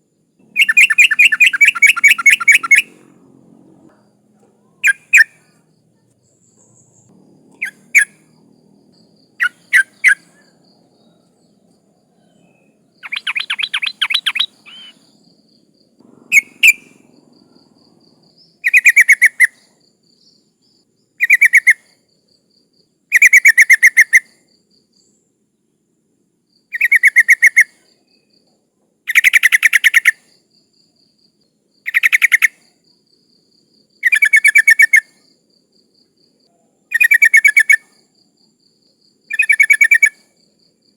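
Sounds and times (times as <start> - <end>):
bird bubbling chatter calls: 0.6 - 2.9, 13.0 - 15.0.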